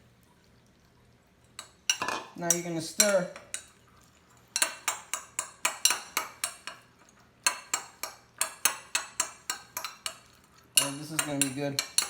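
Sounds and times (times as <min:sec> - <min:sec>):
utensil clinking against bowl: 0:01.6 - 0:03.8, 0:04.5 - 0:12.0.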